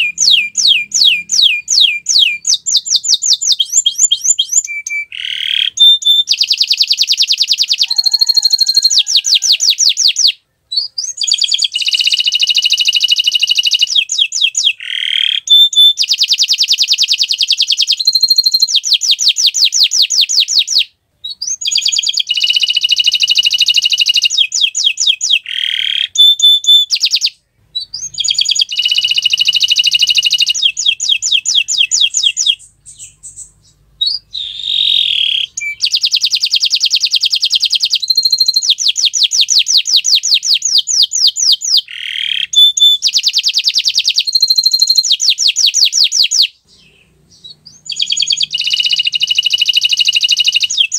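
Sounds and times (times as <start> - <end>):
canary singing trills: 0.0 - 50.9.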